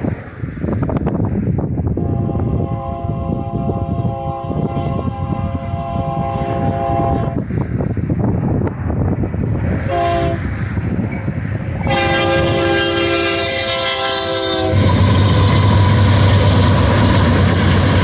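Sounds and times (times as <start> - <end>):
passing train rumble: 0.0 - 18.0
wind: 0.0 - 18.0
locomotive air horn blasts: 2.0 - 7.4, 9.9 - 10.5, 11.8 - 18.0.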